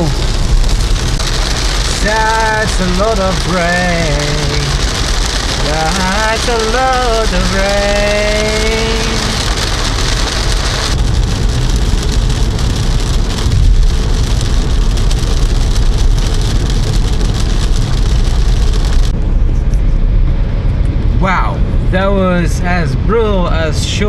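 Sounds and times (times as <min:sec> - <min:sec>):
heavy rain on a car: 0:00.0 - 0:19.2
car and tyres rumbling on wet road: 0:00.0 - 0:24.0.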